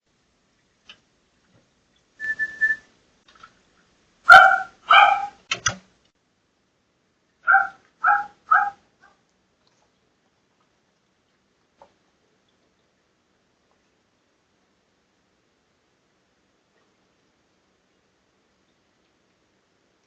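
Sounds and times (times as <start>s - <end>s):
whistle-like tone: 2.2s - 2.9s
dog barking: 4.3s - 5.4s, 7.4s - 9.2s.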